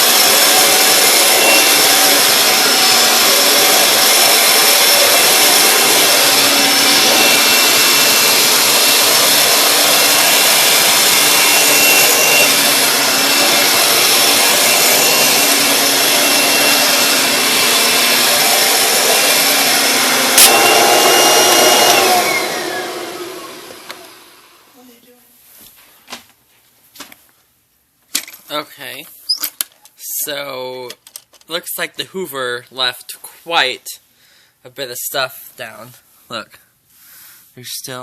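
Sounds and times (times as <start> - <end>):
vacuum cleaner motor whine: 0.0 - 24.7.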